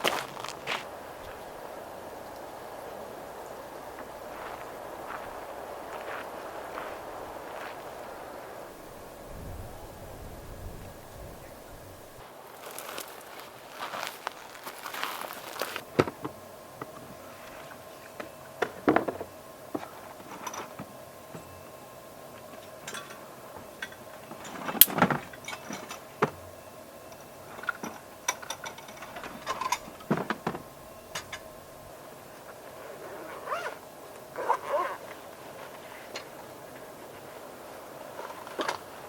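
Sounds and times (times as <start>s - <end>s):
faint steady hum: 0.0s - 39.0s
objects being handled: 12.2s - 15.8s.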